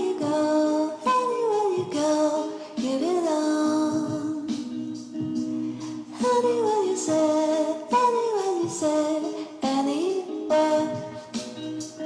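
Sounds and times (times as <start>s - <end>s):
sung or hummed melody: 0.0s - 12.0s.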